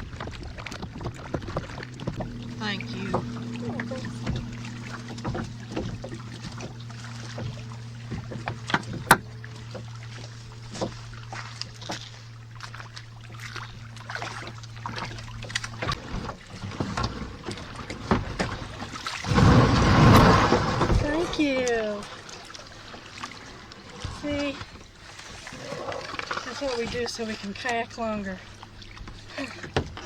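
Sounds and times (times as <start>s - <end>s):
paddles knocking against kayak hulls: 0.0s - 19.2s
steady low hum: 0.8s - 19.2s.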